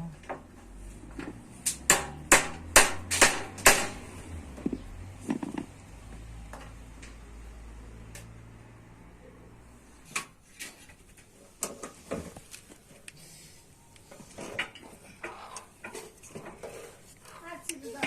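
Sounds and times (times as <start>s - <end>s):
hammer striking metal: 1.7s - 4.1s.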